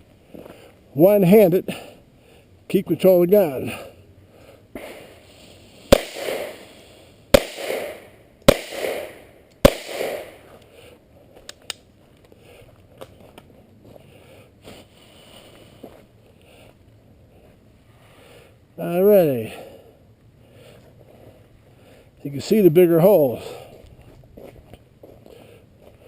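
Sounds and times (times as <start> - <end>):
gunshots with echo: 5.9 - 6.7, 7.3 - 10.4.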